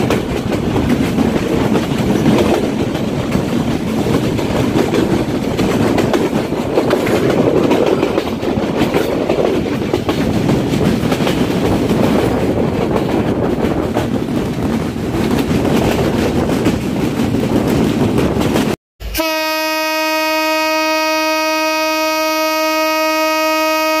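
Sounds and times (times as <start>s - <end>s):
wheels clickety-clack over rail joints: 0.0s - 18.8s
train rumble: 0.0s - 19.7s
steady horn-like tone: 19.0s - 24.0s.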